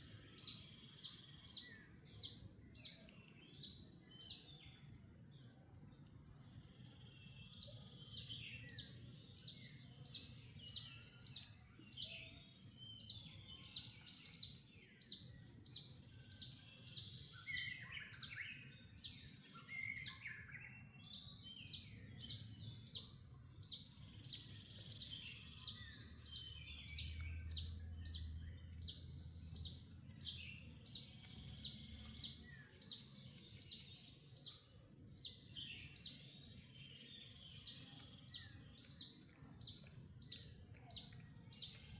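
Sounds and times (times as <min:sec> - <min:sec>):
bird chirping: 0:00.0 - 0:41.9
lower bird chirps: 0:00.0 - 0:41.9.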